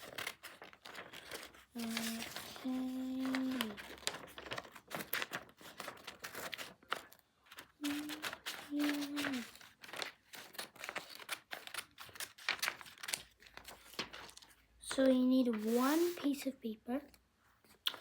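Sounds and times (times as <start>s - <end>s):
scissors snipping paper: 0.0s - 13.3s
paper rustling and crinkling: 0.0s - 16.6s
person humming: 7.8s - 9.5s.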